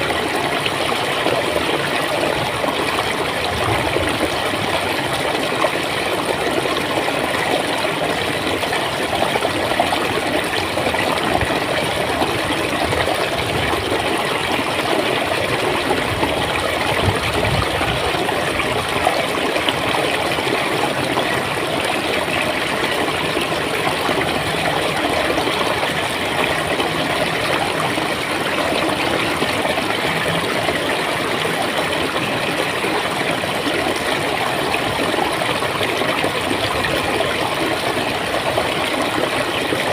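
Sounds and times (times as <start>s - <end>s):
stream water gurgling: 0.0s - 39.9s.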